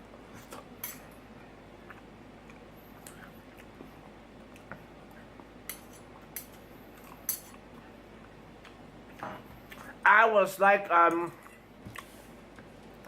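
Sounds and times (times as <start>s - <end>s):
cutlery clicking against a plate: 5.7s - 6.6s, 7.3s - 7.6s.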